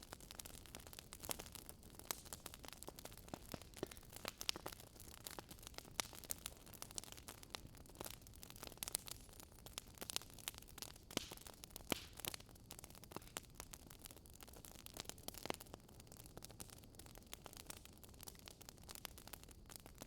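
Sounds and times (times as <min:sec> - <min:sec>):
fireplace crackling: 0:00.0 - 0:15.7.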